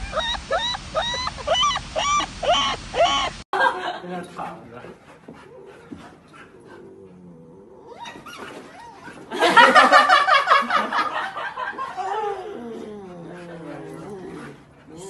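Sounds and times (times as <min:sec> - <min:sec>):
puppy howling cry: 0:00.0 - 0:03.4, 0:07.2 - 0:09.3
puppy whining: 0:00.0 - 0:03.4, 0:05.4 - 0:09.3, 0:12.0 - 0:15.0.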